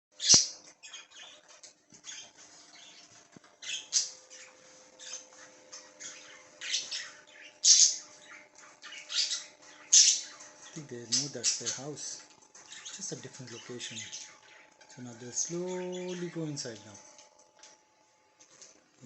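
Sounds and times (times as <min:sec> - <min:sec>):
budgerigars squawking and chirping: 0:00.2 - 0:16.8.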